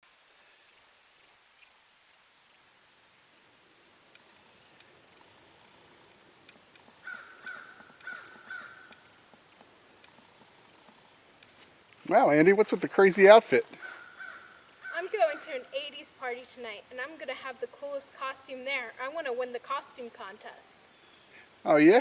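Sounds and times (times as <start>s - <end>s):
insect high trill: 0.1s - 22.0s
insect short chirps: 0.1s - 22.0s
faint short calls: 12.0s - 22.0s.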